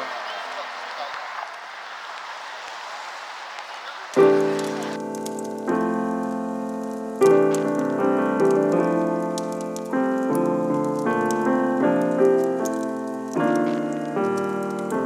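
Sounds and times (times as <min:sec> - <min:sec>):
faint crackle: 0:00.0 - 0:15.0
piano chords: 0:04.1 - 0:15.0.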